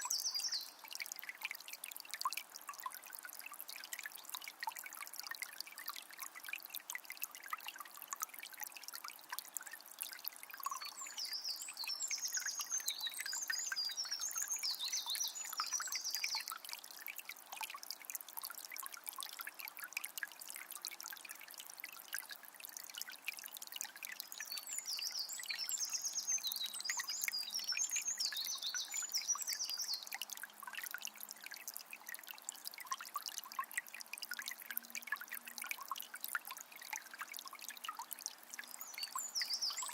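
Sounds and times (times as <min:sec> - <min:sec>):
songbird singing: 0:00.0 - 0:00.8, 0:10.6 - 0:16.6, 0:24.3 - 0:30.2, 0:38.6 - 0:39.9
spring water trickling: 0:00.0 - 0:39.9.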